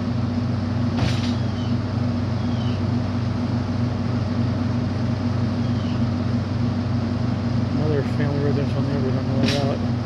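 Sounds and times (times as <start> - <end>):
machinery drone: 0.0 - 10.0.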